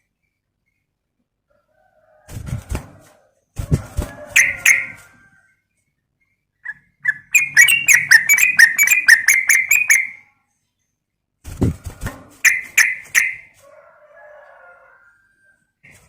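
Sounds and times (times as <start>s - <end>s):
bulbul calling: 4.4s - 5.0s, 6.6s - 10.3s, 12.4s - 13.5s
rapid bird chattering: 6.6s - 10.2s, 12.4s - 13.5s.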